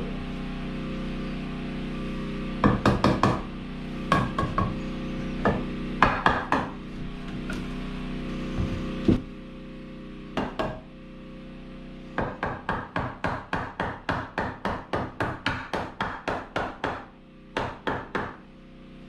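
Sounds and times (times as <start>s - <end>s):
hammer striking wood: 2.6s - 3.5s, 4.1s - 4.8s, 5.4s - 7.6s, 8.6s - 9.3s, 10.4s - 10.8s, 12.2s - 18.4s.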